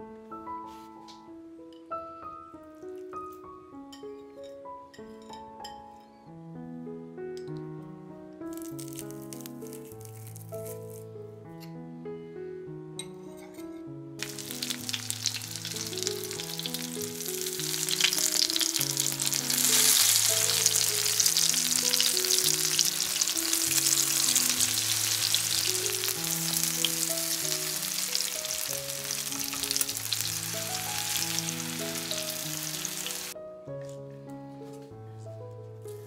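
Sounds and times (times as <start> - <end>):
soft background music: 0.0 - 36.0
vegetables frying in hot oil: 14.2 - 33.4.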